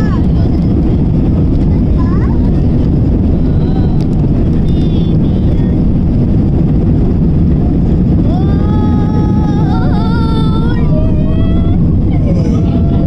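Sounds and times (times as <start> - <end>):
airliner engine roar in cabin: 0.0 - 13.0
high-pitched voice: 8.3 - 13.0.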